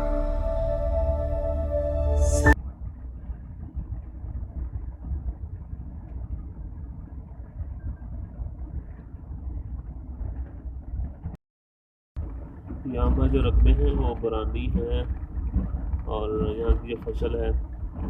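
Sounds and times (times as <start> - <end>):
ambient music: 0.0 - 2.6
moving train rumble: 0.0 - 2.6, 12.3 - 18.0.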